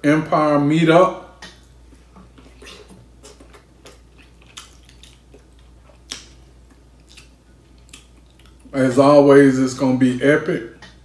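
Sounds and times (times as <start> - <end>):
person chewing with lip smacks: 1.4 - 8.8.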